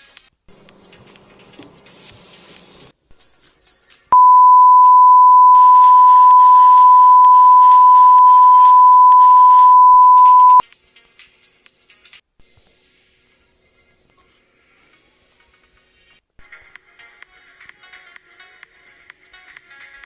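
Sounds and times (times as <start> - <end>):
loud steady censor beep: 4.2 - 10.6.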